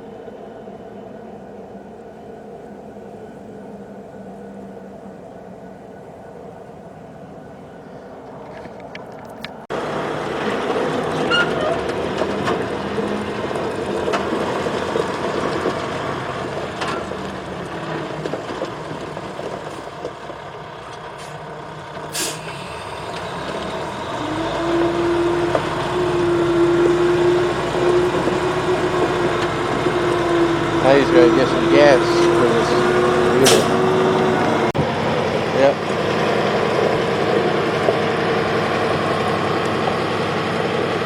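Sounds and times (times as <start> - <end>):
steady engine hum: 0.0 - 41.0
heavy diesel engines running: 6.4 - 41.0
air brake hiss: 22.1 - 23.0, 33.4 - 33.8.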